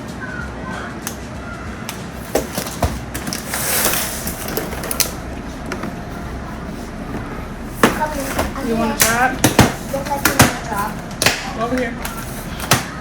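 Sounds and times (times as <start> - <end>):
steady low hum: 0.0 - 13.0
food packages clicking and knocking: 1.9 - 5.9.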